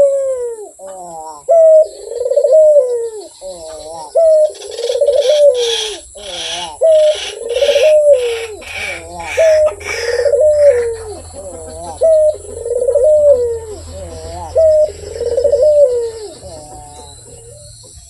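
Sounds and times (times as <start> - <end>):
dove cooing: 0.0 - 18.0
rapid hissy pulsing: 4.4 - 18.0.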